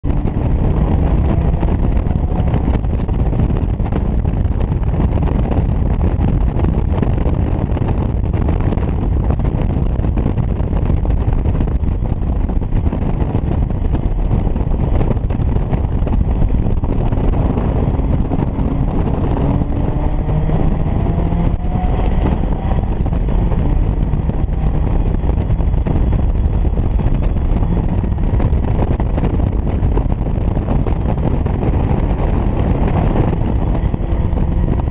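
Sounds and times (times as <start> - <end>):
wind buffeting on microphone: 0.0 - 34.9
race car engine revving: 12.7 - 34.9.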